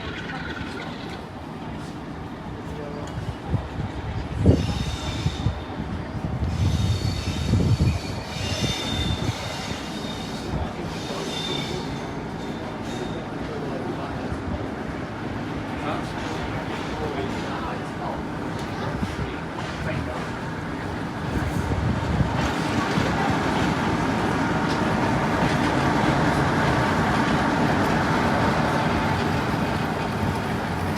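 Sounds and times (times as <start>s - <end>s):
diesel locomotive passing: 0.0s - 30.9s
rail and wheel noise: 0.0s - 30.9s
high-pitched wheel squeal: 6.5s - 13.2s.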